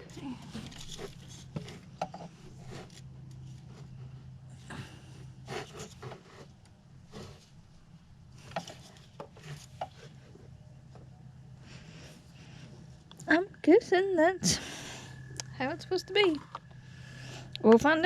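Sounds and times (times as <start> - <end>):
rubbing and scraping: 0.0 - 4.2, 5.4 - 7.8, 8.4 - 10.6
steady low hum: 0.0 - 18.0.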